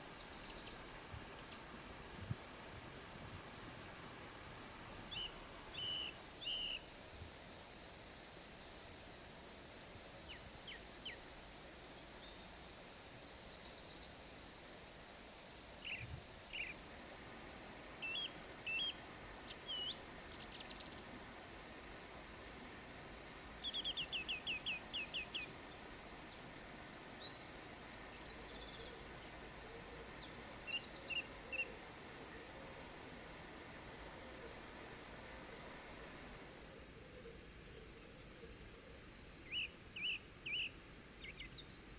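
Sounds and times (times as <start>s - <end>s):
songbirds singing and calling: 0.0s - 2.6s, 5.1s - 6.9s, 9.9s - 14.3s, 15.8s - 16.8s, 18.0s - 22.0s, 23.5s - 31.9s, 37.4s - 41.9s
background hiss: 0.0s - 41.9s.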